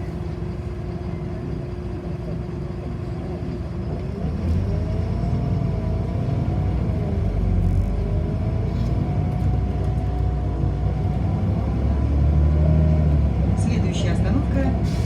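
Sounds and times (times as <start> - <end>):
bus drivetrain and road rumble: 0.0 - 15.0.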